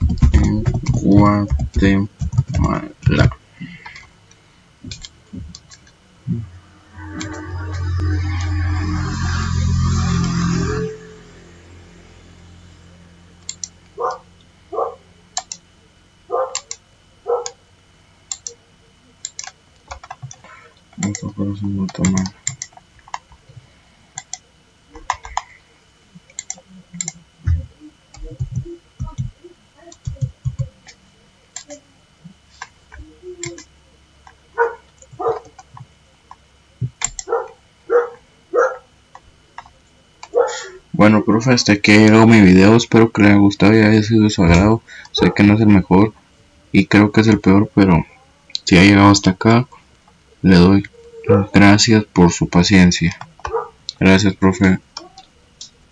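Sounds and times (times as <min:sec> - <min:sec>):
short animal calls: 0:06.3 - 0:10.9
faint scattered clicks: 0:13.4 - 0:14.5, 0:15.4 - 0:15.6, 0:18.3 - 0:18.6, 0:19.2 - 0:23.6, 0:24.2 - 0:25.6, 0:26.2 - 0:31.8, 0:32.5 - 0:37.3
dog barking: 0:14.0 - 0:15.1, 0:16.3 - 0:17.6, 0:34.6 - 0:35.6, 0:37.2 - 0:38.9, 0:40.2 - 0:40.8, 0:45.2 - 0:45.5, 0:51.2 - 0:51.6, 0:53.4 - 0:53.8.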